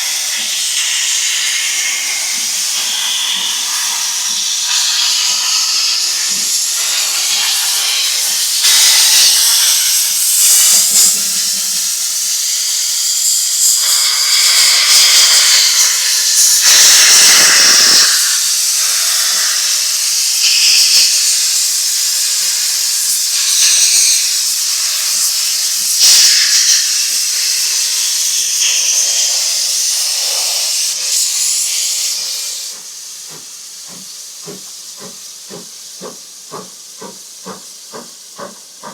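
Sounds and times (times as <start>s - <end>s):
steam locomotive hissing: 0.0s - 38.9s.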